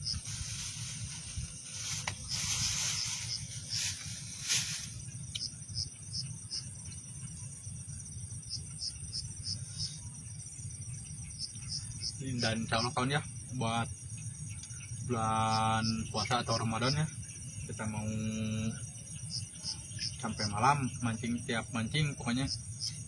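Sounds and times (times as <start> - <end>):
hiss: 0.0 - 5.1
steady low rumble: 0.0 - 15.1
insects whining and chirping: 0.0 - 23.0.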